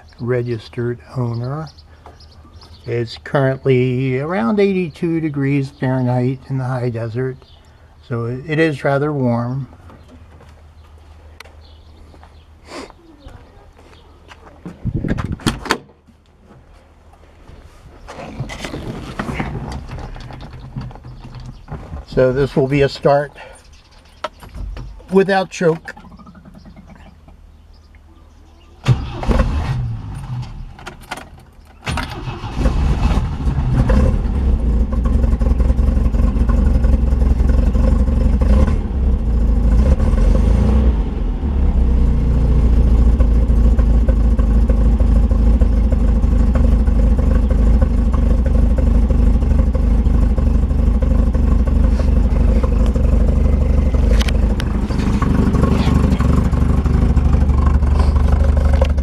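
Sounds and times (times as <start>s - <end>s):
starter motor cranking: 28.8s - 38.8s, 43.2s - 59.0s
car engine running and revving: 32.3s - 59.0s.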